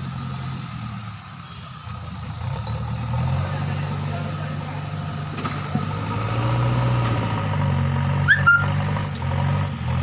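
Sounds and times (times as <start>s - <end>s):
engine idling with low hum: 0.0s - 6.0s.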